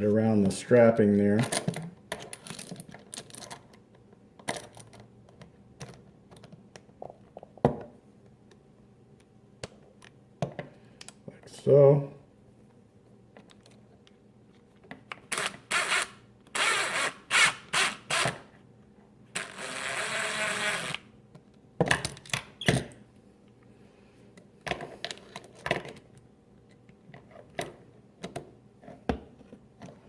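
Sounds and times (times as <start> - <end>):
cordless drill running: 15.3 - 18.4, 19.4 - 21.1.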